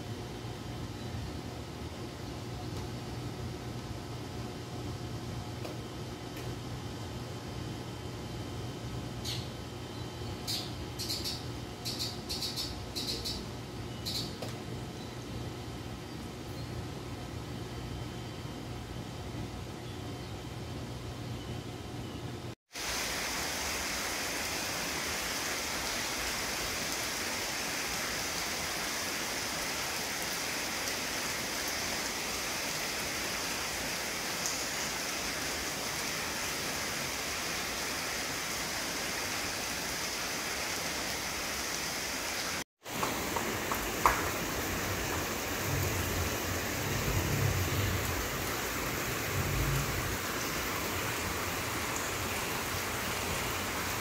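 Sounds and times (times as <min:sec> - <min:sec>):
steady rain falling: 0:22.7 - 0:54.0
low rumbles: 0:44.4 - 0:51.0.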